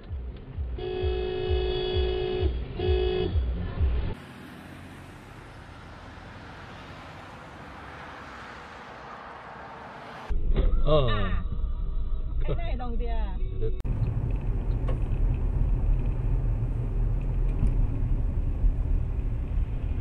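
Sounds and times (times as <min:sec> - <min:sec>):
low thumping beat: 0:00.0 - 0:04.2
road and engine noise inside car: 0:00.0 - 0:10.4, 0:12.4 - 0:20.0
car horn honking: 0:00.7 - 0:03.9.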